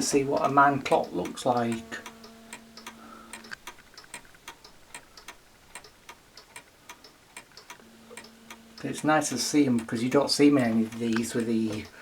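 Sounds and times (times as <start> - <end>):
low hum: 0.0 - 3.7, 7.8 - 11.1
clock ticking: 0.0 - 12.0.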